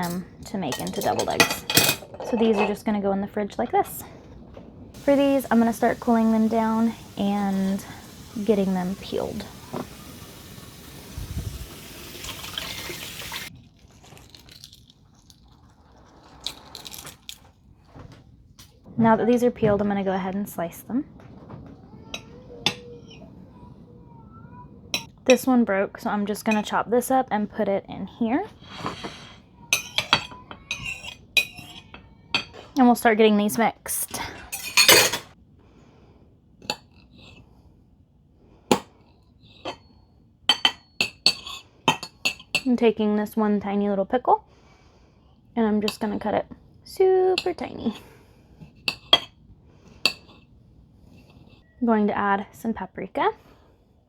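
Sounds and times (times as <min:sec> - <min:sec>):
tap running water into sink: 0:05.0 - 0:13.5
utensil clinking against bowl: 0:29.8 - 0:32.5.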